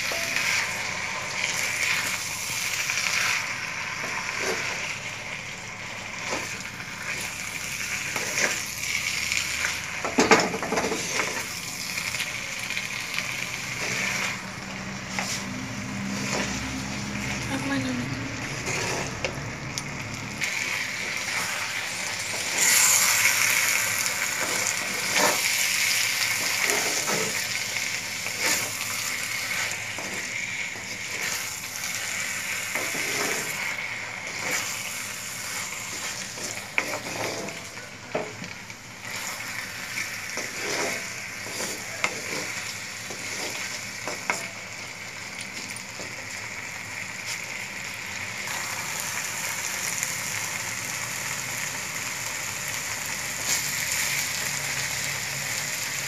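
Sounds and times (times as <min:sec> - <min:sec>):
vegetables sizzling in a pan: 0:00.0 - 0:56.0
spatula scraping and tapping pan: 0:35.9 - 0:38.6, 0:40.3 - 0:44.6.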